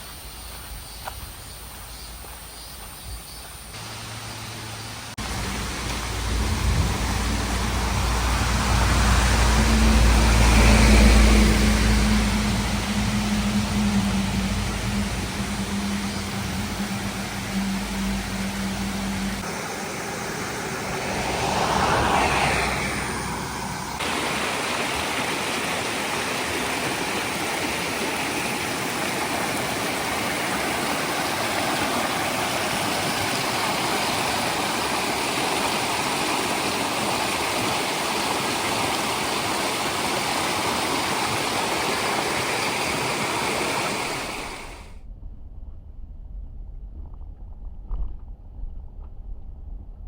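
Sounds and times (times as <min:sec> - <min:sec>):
stream water rushing: 0:03.7 - 0:45.0
whooshing sound: 0:20.8 - 0:24.0.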